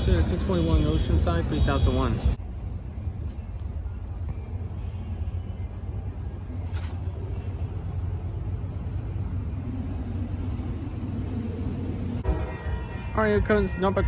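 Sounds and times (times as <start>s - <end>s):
train rumbling: 2.4s - 12.8s.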